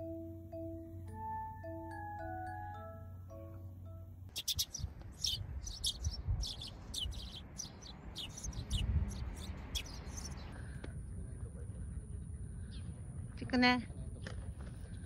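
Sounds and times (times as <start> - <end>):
small birds chirping: 4.3 - 10.7.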